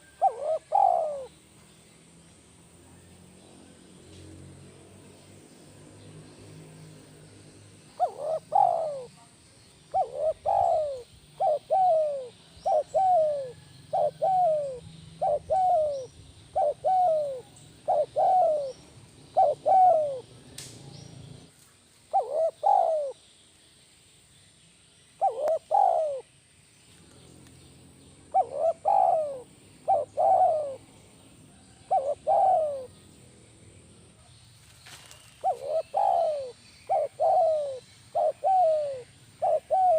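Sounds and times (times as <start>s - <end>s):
dove cooing: 0.0s - 1.4s, 8.0s - 9.2s, 9.9s - 20.3s, 22.1s - 23.2s, 25.2s - 26.3s, 28.3s - 33.0s, 35.4s - 39.9s.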